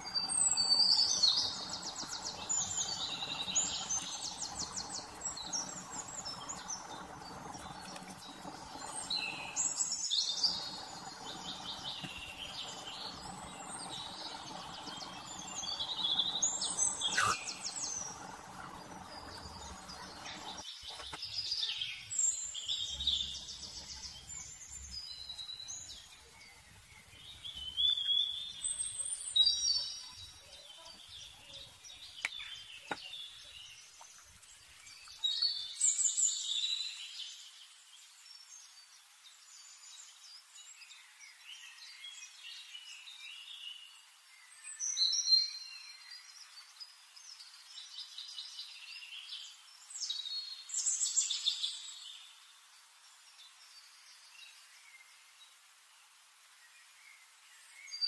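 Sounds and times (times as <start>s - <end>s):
low background hum: 0.0s - 20.6s
birds trilling and chirping: 0.0s - 30.3s.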